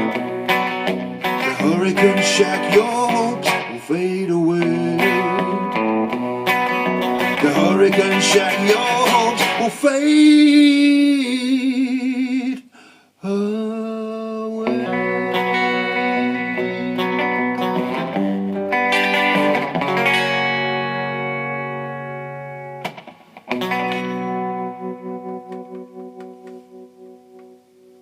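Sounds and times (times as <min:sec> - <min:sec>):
strummed guitar chords with effects: 0:00.0 - 0:12.6, 0:13.3 - 0:28.0.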